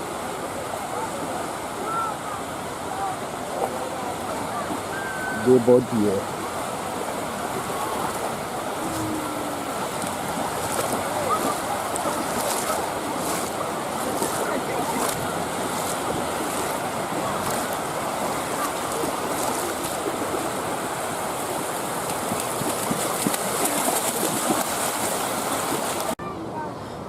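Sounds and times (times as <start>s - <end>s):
sea waves washing on shore: 0.0s - 26.2s.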